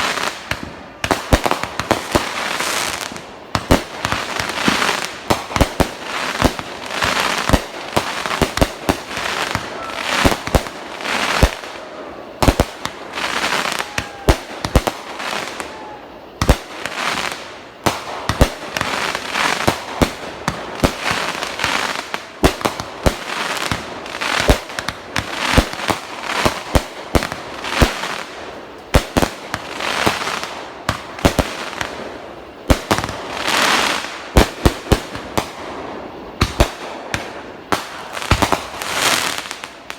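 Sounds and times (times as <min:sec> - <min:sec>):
fireworks banging: 0:00.0 - 0:39.9
fireworks hissing and crackling: 0:00.0 - 0:39.9.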